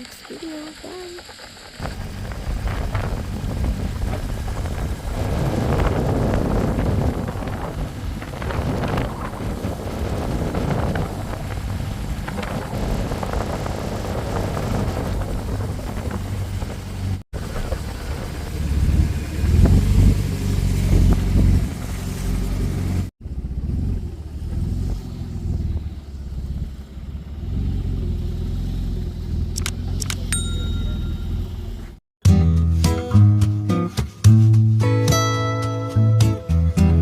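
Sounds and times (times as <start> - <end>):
wind on microphone: 1.8 - 22.9
motorcycle engine running: 1.8 - 32.0.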